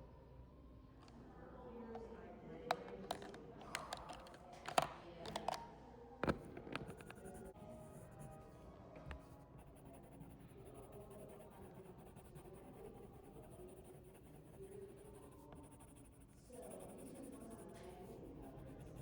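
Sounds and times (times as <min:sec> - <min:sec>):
scratching on paper: 0:06.8 - 0:19.0.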